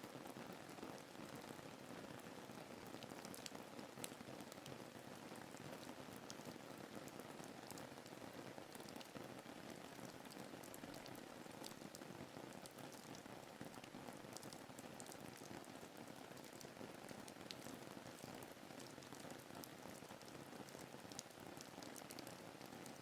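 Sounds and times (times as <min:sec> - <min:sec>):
rain drop ticks: 0:16.4 - 0:23.0.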